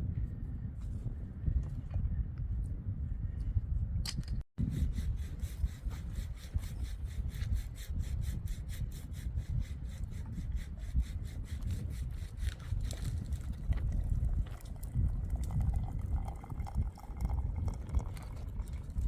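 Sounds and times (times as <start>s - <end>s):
hand saw cutting wood: 4.6s - 13.3s.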